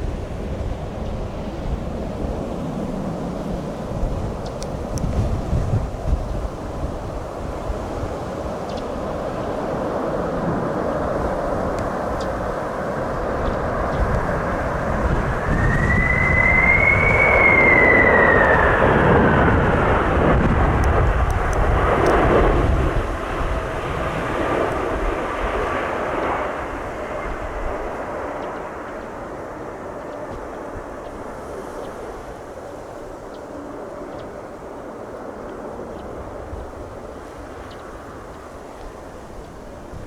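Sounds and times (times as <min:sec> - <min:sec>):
jet airliner engine rumble: 0:00.0 - 0:40.0
high engine whine: 0:11.6 - 0:29.4.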